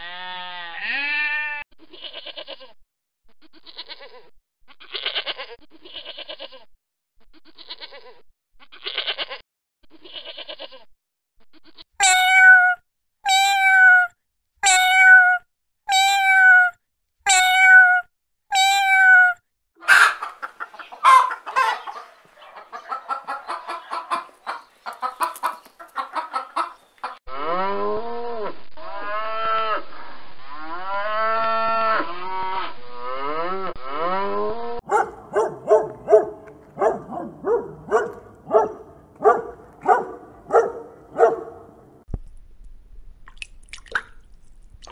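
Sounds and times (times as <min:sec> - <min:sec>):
goat bleating: 0:00.0 - 0:02.8, 0:03.5 - 0:06.7, 0:07.4 - 0:10.9
dogs barking: 0:19.8 - 0:25.3, 0:34.8 - 0:42.0
chickens clucking: 0:19.8 - 0:27.2, 0:34.9 - 0:41.5.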